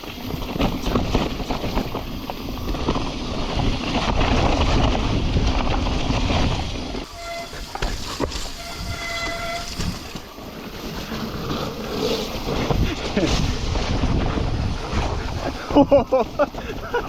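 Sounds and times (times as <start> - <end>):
bike tyre noise: 0.0 - 17.0
wind rushing over microphone: 0.0 - 17.0
disc brakes squealing: 7.0 - 10.5.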